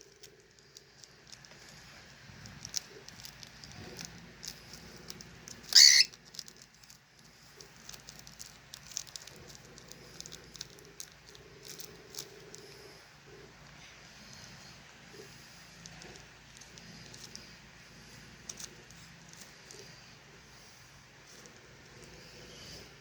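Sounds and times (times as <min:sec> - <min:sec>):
light clicks and scratches: 0:00.0 - 0:23.0
cockatiel shrill call: 0:05.7 - 0:06.1.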